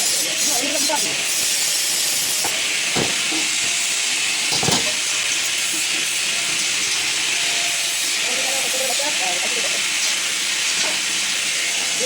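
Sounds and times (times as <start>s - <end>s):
welding torch hissing: 0.0s - 12.0s
short knocks: 2.4s - 3.8s.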